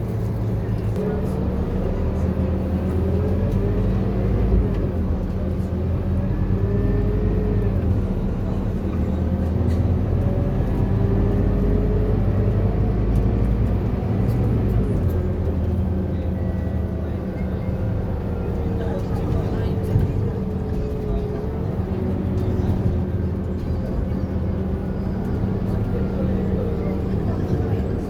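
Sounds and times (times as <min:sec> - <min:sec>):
bus diesel engine drone: 0:00.0 - 0:28.0
engine whine: 0:00.0 - 0:28.0.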